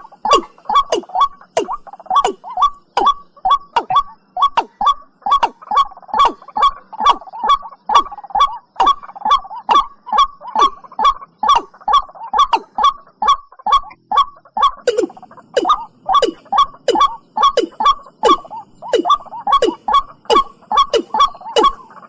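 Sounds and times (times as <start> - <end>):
bird calling short hollow notes: 0.0 - 22.0.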